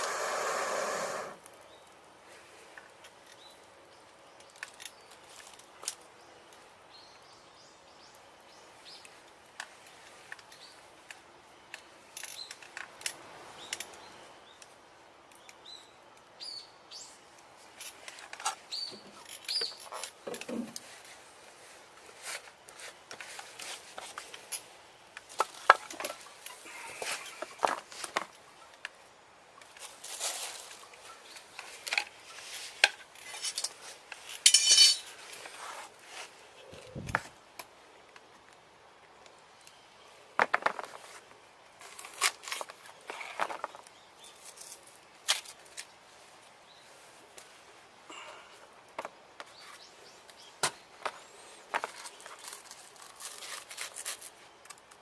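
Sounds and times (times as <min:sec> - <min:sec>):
metal cookware clinking: 0:34.5 - 0:35.0.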